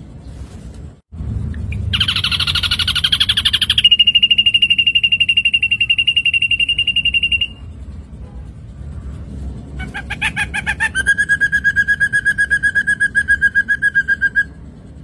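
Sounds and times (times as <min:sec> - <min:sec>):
bird trilling: 0:01.6 - 0:07.8, 0:09.8 - 0:14.8.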